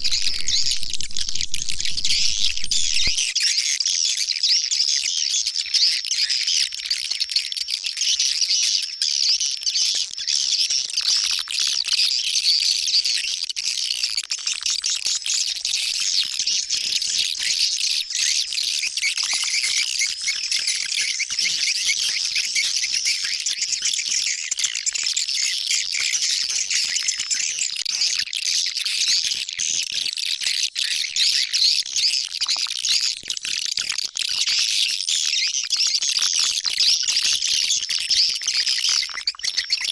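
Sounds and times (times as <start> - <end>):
high chirping bird calls: 0.0 - 3.4.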